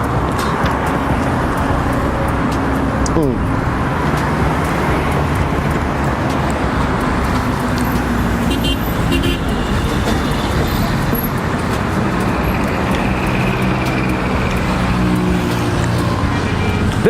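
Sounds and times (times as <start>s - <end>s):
city street traffic: 0.0s - 17.0s
high-pitched horn toot: 8.4s - 10.4s.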